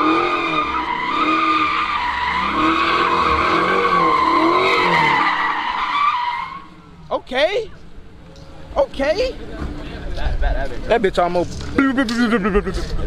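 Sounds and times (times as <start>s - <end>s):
car engine revving: 0.0s - 7.0s
car tyres squealing: 0.0s - 7.1s.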